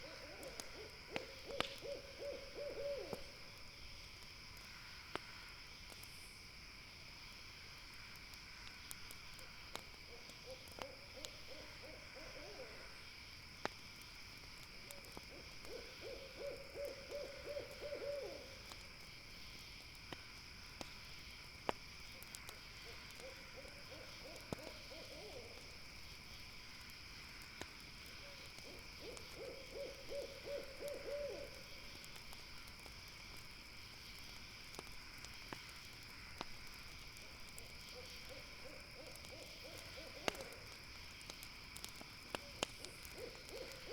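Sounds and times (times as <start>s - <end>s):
owl trilled hoots: 0.0s - 3.3s, 10.1s - 13.0s, 15.0s - 18.6s, 22.8s - 25.7s, 28.2s - 31.7s, 37.9s - 40.7s, 42.4s - 43.9s
campfire crackles: 0.0s - 43.9s
insects chirring: 0.0s - 43.9s.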